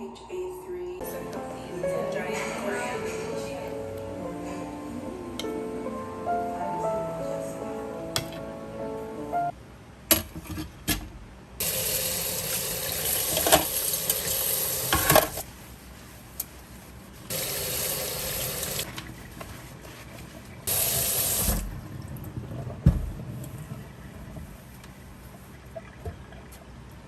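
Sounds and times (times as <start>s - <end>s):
tap water running into sink: 11.6s - 15.4s, 17.3s - 19.1s, 20.7s - 23.6s.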